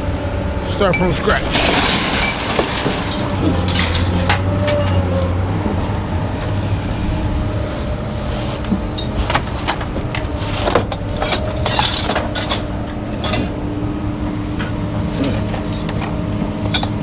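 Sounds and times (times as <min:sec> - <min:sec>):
broom scraping truck bed: 0:00.7 - 0:13.6
debris clicking and clinking: 0:00.9 - 0:05.2, 0:08.9 - 0:13.5.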